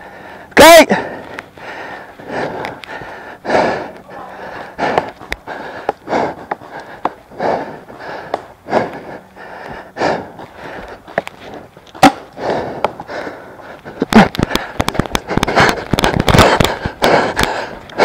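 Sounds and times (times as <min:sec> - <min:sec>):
person panting: 0:00.0 - 0:18.0
sharp crack: 0:11.9 - 0:12.4.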